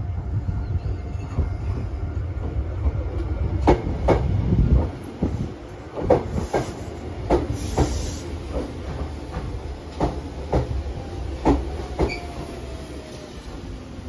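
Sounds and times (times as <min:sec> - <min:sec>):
low train rumble: 0:00.0 - 0:14.0
train wheels clacking over joints: 0:05.9 - 0:10.8.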